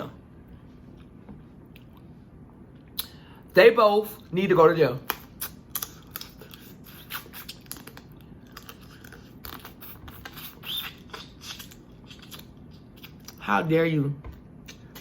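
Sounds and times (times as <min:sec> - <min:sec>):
person chewing: 0:05.0 - 0:13.4, 0:14.6 - 0:15.0.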